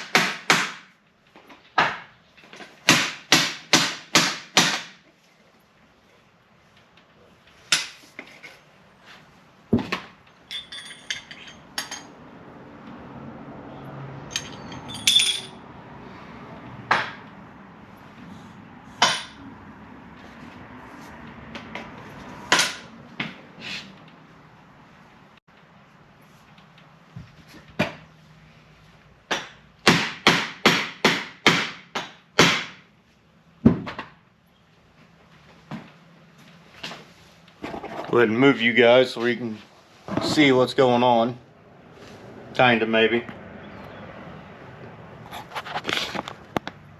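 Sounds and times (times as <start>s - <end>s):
metal parts clinking: 10.2s - 12.1s, 14.3s - 15.6s.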